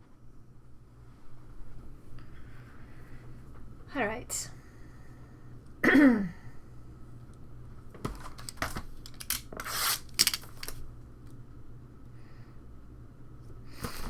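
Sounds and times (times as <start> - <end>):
packaging crinkling and tearing: 8.0 - 10.8.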